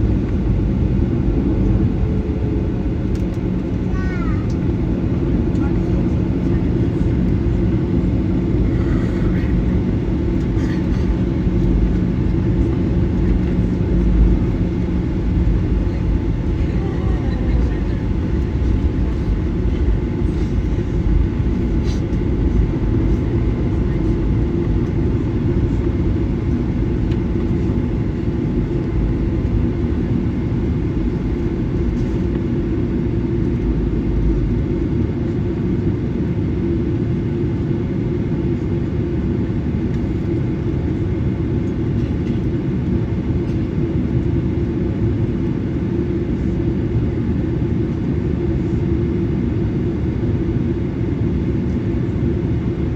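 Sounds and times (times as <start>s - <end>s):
airplane cabin rumble: 0.0s - 52.9s.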